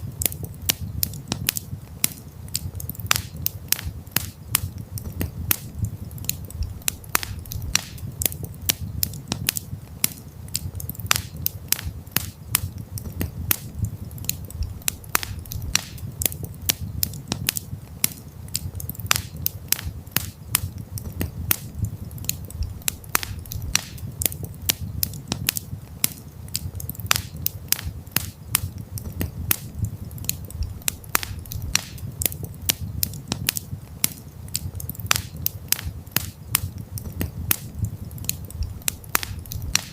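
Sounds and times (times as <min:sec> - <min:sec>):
campfire crackling and popping: 0:00.0 - 0:39.9
low steady rumble: 0:03.9 - 0:09.9, 0:11.9 - 0:17.9, 0:19.9 - 0:25.9, 0:27.9 - 0:33.9, 0:35.9 - 0:39.9.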